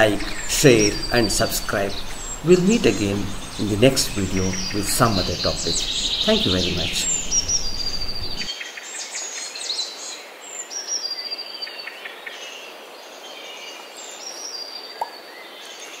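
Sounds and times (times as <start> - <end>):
bird chirps and chatter: 0.0 - 8.5
birds whistling downward notes: 0.0 - 8.5.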